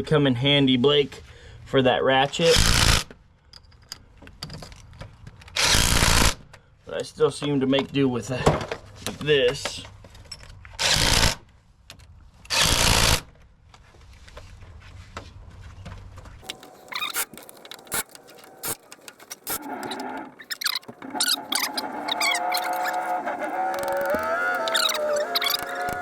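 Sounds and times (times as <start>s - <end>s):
loud noisy hand tool bursts: 5.6s - 6.4s, 12.5s - 13.2s.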